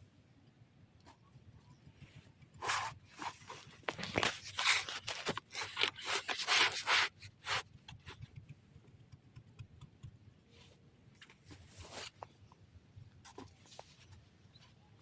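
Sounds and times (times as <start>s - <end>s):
scraping and rubbing strokes: 1.8s - 8.4s, 10.5s - 12.4s.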